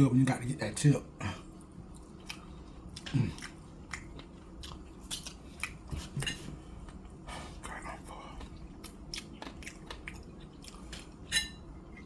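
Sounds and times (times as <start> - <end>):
person biting and chewing food: 1.9 - 6.2, 8.4 - 11.2.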